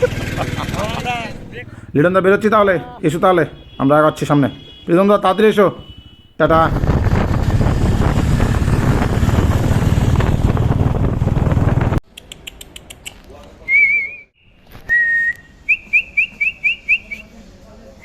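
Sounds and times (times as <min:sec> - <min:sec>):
motorcycle riding noise: 0:00.0 - 0:03.8, 0:05.8 - 0:12.0
wind rushing: 0:06.5 - 0:12.0
whistled calls: 0:13.6 - 0:17.3.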